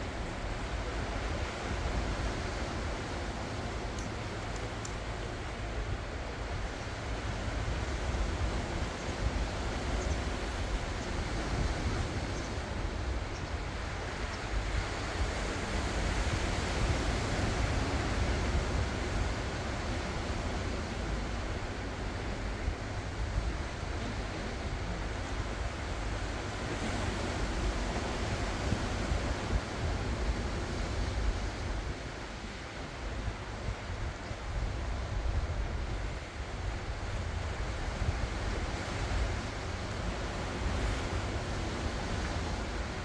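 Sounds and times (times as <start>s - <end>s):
waves breaking on shore: 0.0s - 43.0s.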